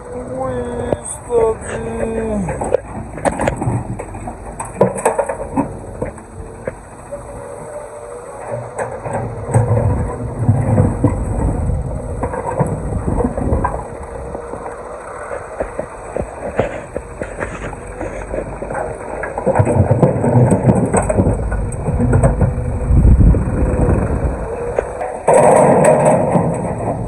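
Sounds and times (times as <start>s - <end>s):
excavator whine: 0.0s - 27.0s
stones clattering and rumbling: 0.4s - 7.5s, 8.6s - 27.0s.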